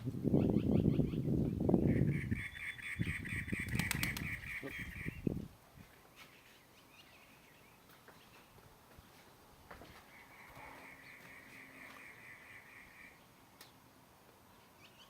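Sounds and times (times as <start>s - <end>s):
bird calling repeated notes: 1.9s - 5.3s, 10.1s - 13.2s.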